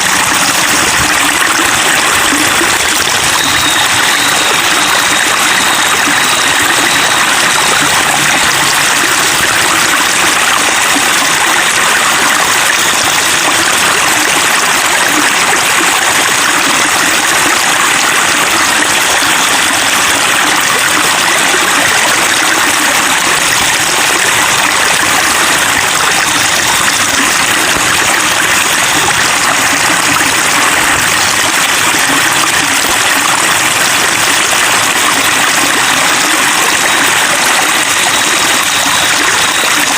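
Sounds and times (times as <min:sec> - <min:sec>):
water babbling: 0:00.0 - 0:39.9.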